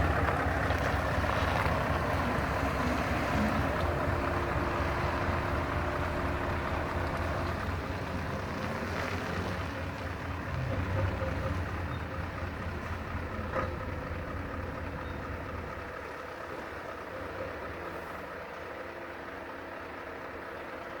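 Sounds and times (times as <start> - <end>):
diesel truck engine droning: 0.0 - 21.0.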